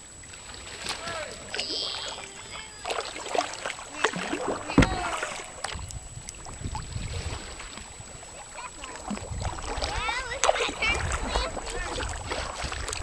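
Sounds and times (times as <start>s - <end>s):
paddle splashing water: 0.0s - 13.0s
wind rumble on microphone: 4.2s - 13.0s
loud knock: 4.5s - 5.4s.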